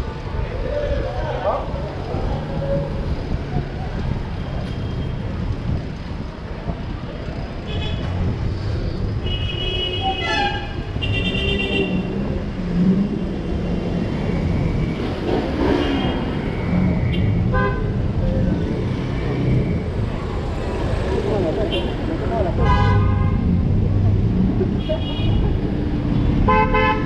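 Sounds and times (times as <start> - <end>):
street traffic rumble: 0.0 - 27.0
car horns honking: 22.6 - 23.5, 26.4 - 27.0.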